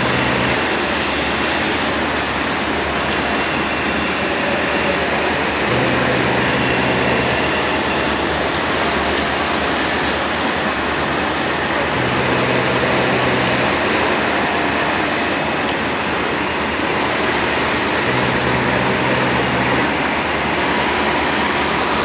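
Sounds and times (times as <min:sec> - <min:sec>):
low motor hum: 0:00.0 - 0:10.0
sewing machine whirring: 0:00.0 - 0:22.0.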